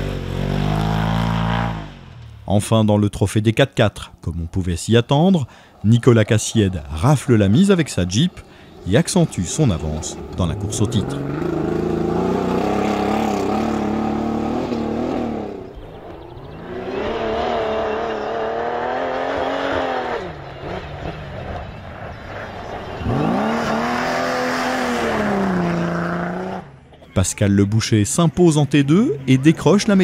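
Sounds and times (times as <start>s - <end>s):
rally car engine at high revs: 0.0s - 2.2s, 10.0s - 26.8s.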